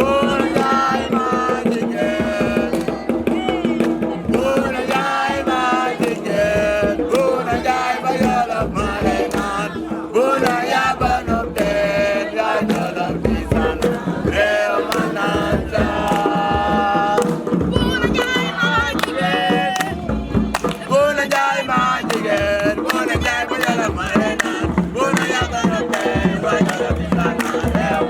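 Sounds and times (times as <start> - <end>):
steady drumming: 0.0 - 28.0
voices singing a chant-like song: 0.0 - 28.0.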